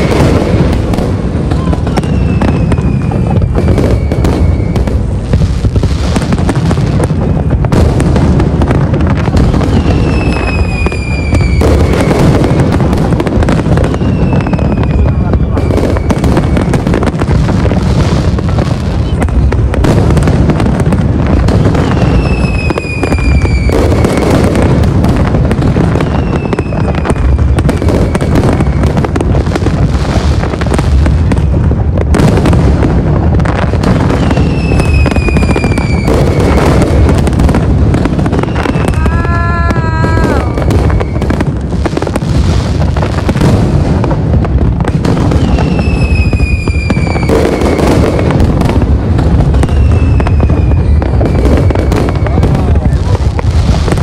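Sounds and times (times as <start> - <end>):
falling firework whistles: 0.0 - 7.8, 8.6 - 17.3, 21.4 - 29.2, 33.5 - 37.3, 37.9 - 41.5, 45.0 - 52.9
fireworks bangs and crackling: 0.0 - 54.0.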